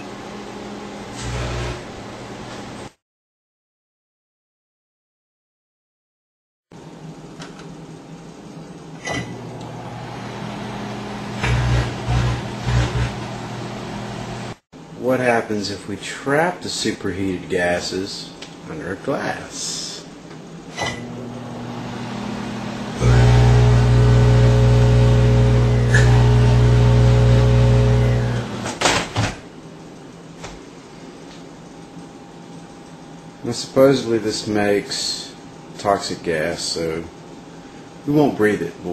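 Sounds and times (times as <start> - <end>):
microwave oven humming: 0.0 - 2.9, 6.8 - 14.6, 20.2 - 38.3.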